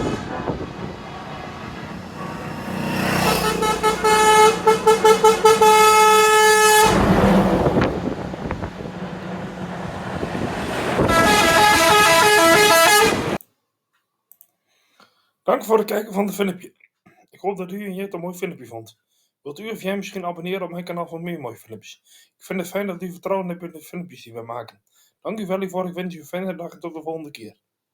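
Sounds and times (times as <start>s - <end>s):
horn playing a tune: 0.0s - 8.1s, 10.6s - 13.4s
passing vehicle: 0.0s - 13.4s
truck air horns honking: 0.0s - 13.4s.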